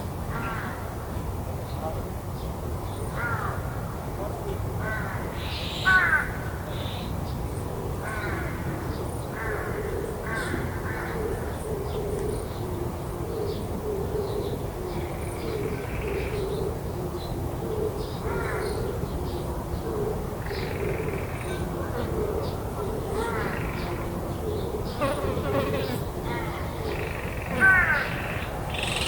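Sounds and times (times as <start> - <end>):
crows cawing: 0.3 - 0.8, 3.2 - 3.8, 4.8 - 6.6, 8.0 - 8.8, 9.4 - 11.4, 23.1 - 24.1, 25.0 - 29.0
small birds chirping: 22.4 - 29.0.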